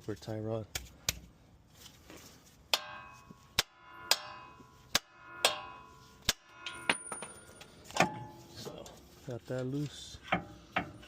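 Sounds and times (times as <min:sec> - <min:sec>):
hammer striking steel: 0:02.7 - 0:08.6.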